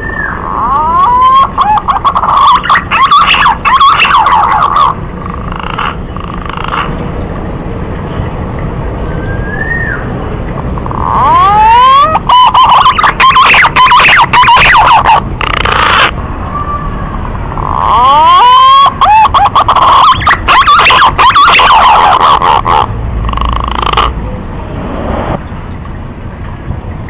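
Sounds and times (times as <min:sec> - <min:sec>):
pigeon whistling calls: 0:00.0 - 0:04.9, 0:09.1 - 0:10.1, 0:10.9 - 0:16.1.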